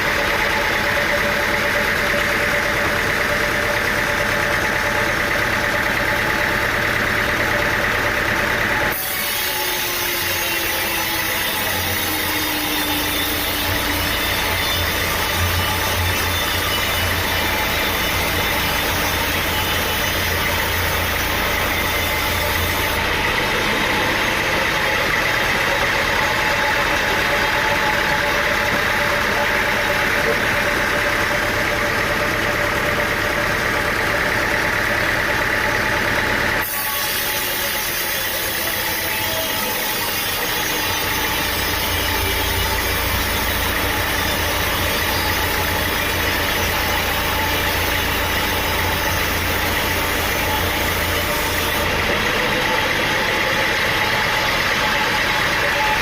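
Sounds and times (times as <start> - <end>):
engine-driven machinery running: 0.0 - 56.0.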